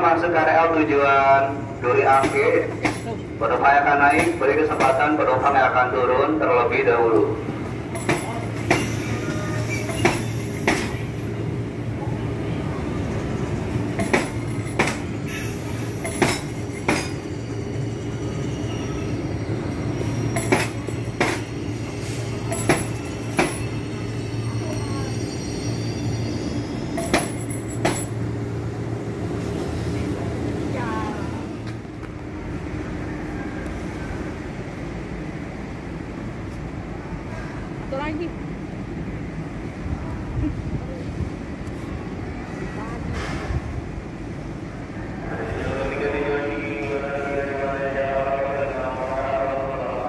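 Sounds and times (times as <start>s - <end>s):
wheels clacking over rail joint: 7.9s - 11.1s, 13.9s - 17.3s, 20.2s - 21.5s, 22.5s - 23.8s, 26.9s - 28.2s.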